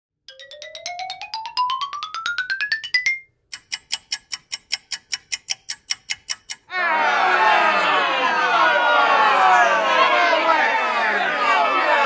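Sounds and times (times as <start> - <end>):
bright electronic ticks: 2.9 - 6.7.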